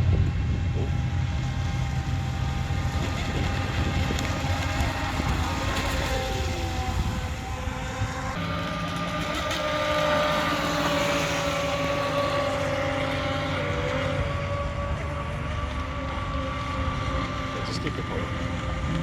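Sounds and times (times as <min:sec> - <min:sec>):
low rumble: 0:00.0 - 0:09.9
model boat motors whining: 0:00.0 - 0:19.0.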